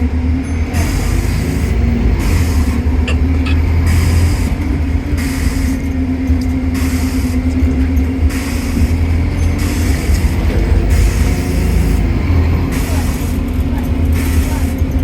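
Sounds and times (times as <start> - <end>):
constant whine: 0.0 - 14.9
bus engine drone: 0.0 - 15.0
hiss: 6.8 - 7.7, 8.3 - 9.0, 9.6 - 14.8.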